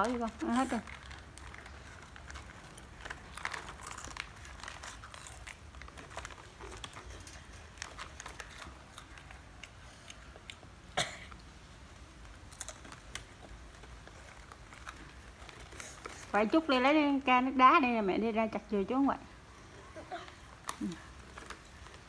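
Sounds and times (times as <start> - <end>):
snack packet handled: 0.0 - 10.7, 20.3 - 22.0
crunchy snack being chewed: 0.0 - 11.5, 12.1 - 16.4, 19.6 - 22.0.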